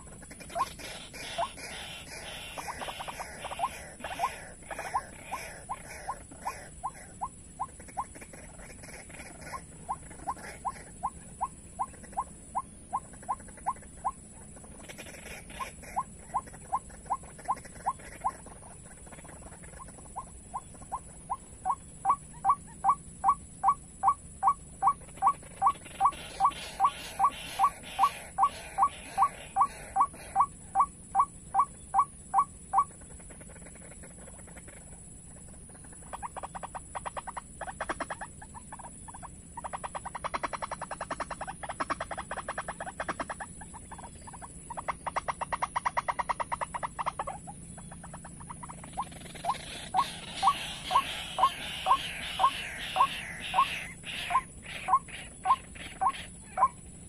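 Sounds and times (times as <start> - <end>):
steady high hiss: 0.0 - 57.0
bird calling short rising notes: 47.0 - 56.8.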